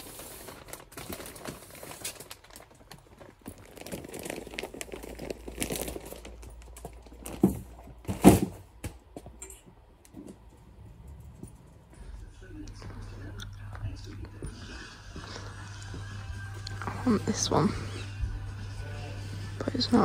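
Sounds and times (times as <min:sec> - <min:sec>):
plastic sack crinkling: 0:00.0 - 0:08.5
sack thudding into metal trolley: 0:07.3 - 0:08.8.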